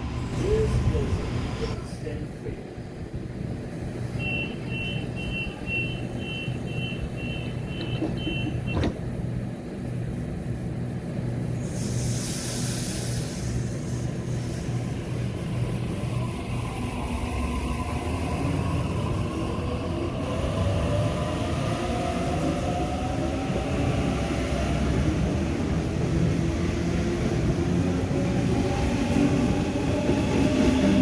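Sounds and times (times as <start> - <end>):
quick high door warning beeps: 4.2 - 8.9
train doors shutting knock: 7.4 - 9.2
short hiss of air: 11.6 - 14.7.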